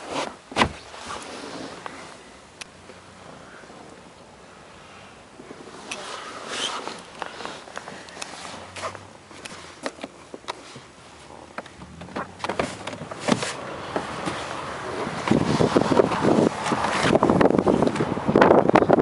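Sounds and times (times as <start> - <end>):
clicks and knocks in car interior: 11.5 - 18.1.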